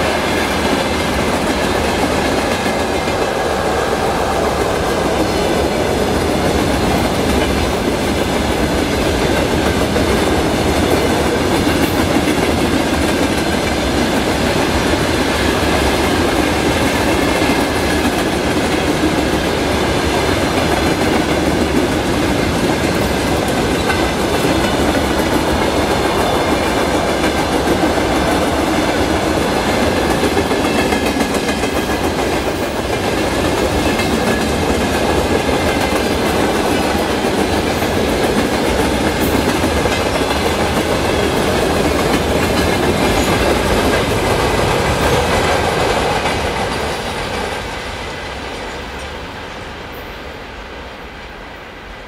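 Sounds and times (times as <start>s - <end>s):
steel wheels running on rails: 0.0s - 50.2s.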